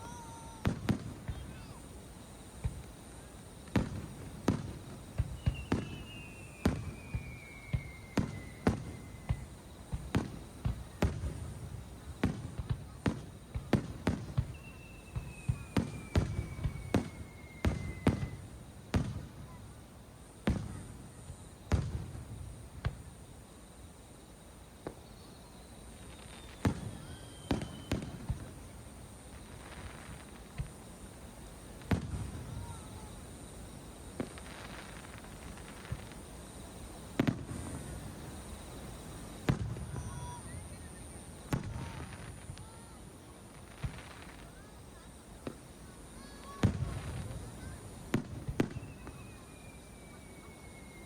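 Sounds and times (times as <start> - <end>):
fireworks bursting with sharp bangs: 0.0 - 51.0
firework whistle gliding down: 4.5 - 9.6, 14.0 - 18.6, 25.0 - 28.5, 46.4 - 51.0.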